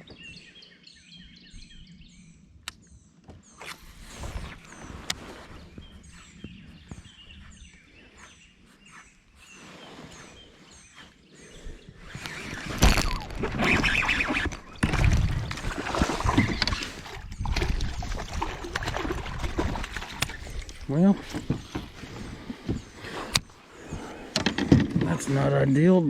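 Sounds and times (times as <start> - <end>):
small bird chirping: 0.0 - 14.8
rustling movement: 3.7 - 17.4.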